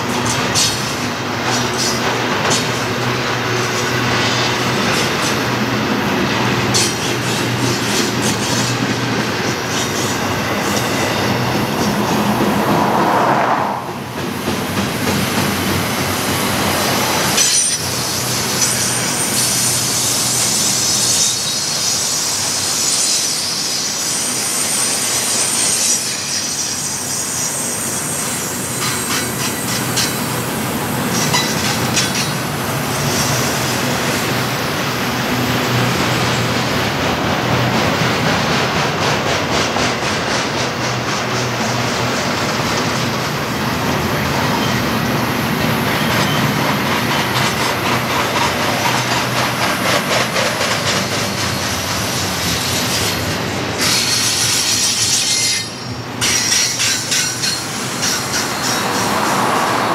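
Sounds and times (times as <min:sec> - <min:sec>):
container train rolling past: 0:00.0 - 0:59.9
high wheel squeal: 0:17.3 - 0:30.4, 0:31.1 - 0:34.4, 0:44.3 - 0:45.1, 0:45.8 - 0:59.9.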